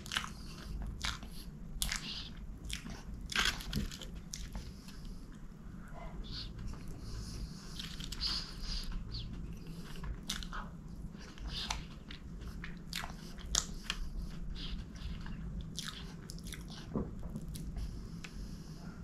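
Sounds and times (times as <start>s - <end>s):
chewing with wet mouth sounds: 0.0s - 19.0s
sticky mouth clicks and smacks: 7.8s - 17.8s.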